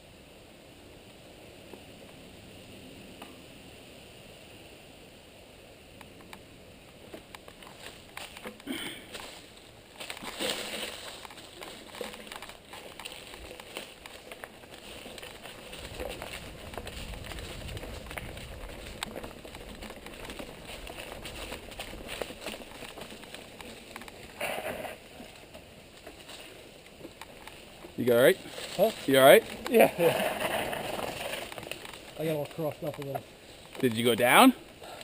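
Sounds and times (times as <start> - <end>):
bike tyres on loose ground: 0.3 - 35.0
bike scrape: 7.0 - 35.0.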